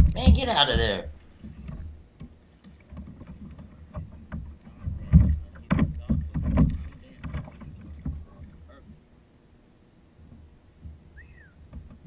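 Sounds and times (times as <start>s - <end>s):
loud thumps: 0.0s - 1.0s.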